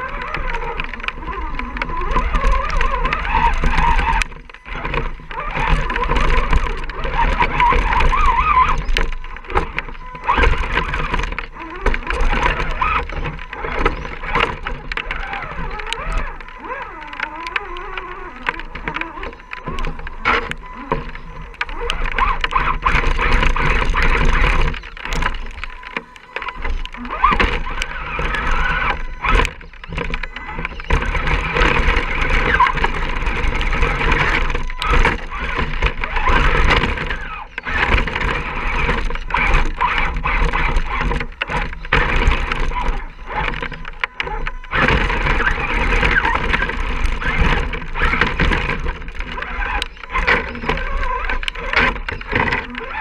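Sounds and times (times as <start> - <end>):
electric motor whine: 0.0 - 53.0.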